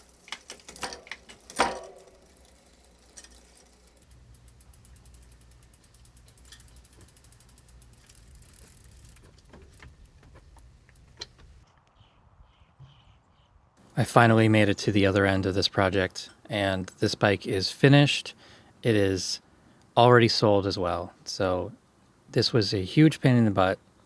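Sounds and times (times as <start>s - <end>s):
bicycle chain running: 0.0s - 11.1s
freewheel ticking rapidly: 0.0s - 11.1s.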